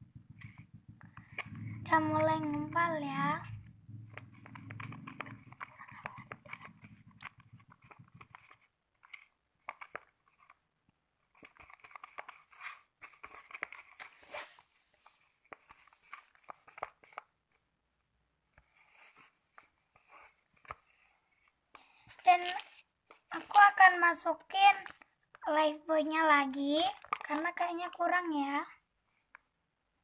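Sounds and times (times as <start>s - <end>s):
sticky slime being stirred: 4.0s - 10.6s.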